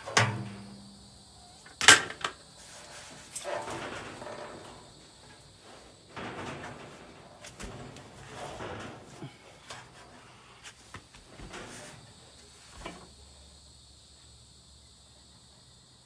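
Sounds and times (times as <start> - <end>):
clicks and knocks of tools: 1.6 - 5.4.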